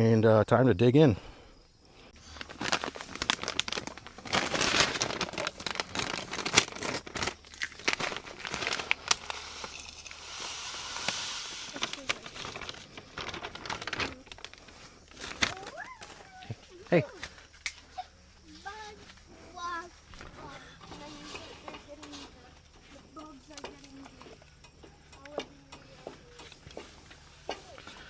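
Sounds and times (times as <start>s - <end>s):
crinkling and crackling clicks: 2.3s - 16.6s, 20.1s - 28.0s.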